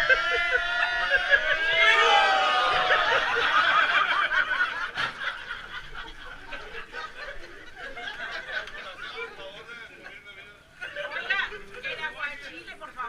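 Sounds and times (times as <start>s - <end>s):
group of people laughing: 0.0s - 10.2s
quiet chatter: 0.0s - 13.0s.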